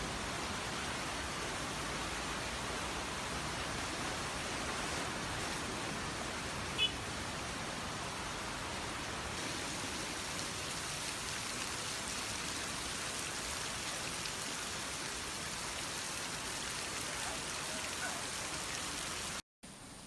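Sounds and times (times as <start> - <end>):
heavy rain falling: 0.0 - 19.4
steady hiss: 14.9 - 20.0.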